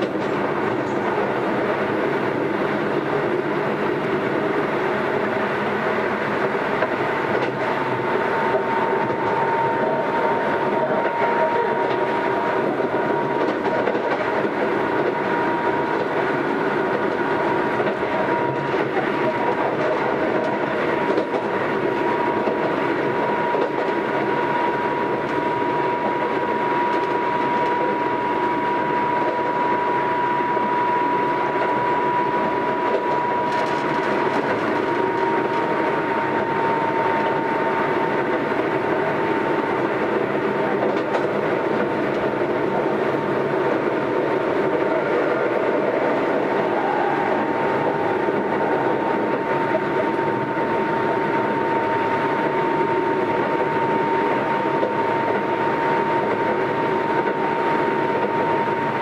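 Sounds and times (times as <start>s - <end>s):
steady high whine: 0.0s - 59.0s
train rolling noise: 0.0s - 59.0s.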